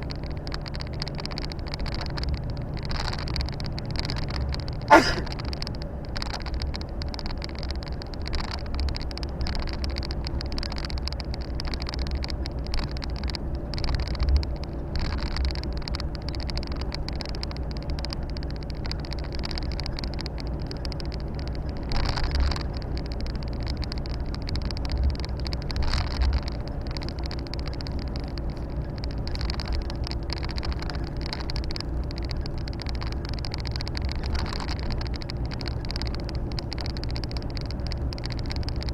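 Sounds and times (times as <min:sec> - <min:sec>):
road and wind hiss: 0:00.0 - 0:38.9
brief thumps: 0:04.9 - 0:05.3.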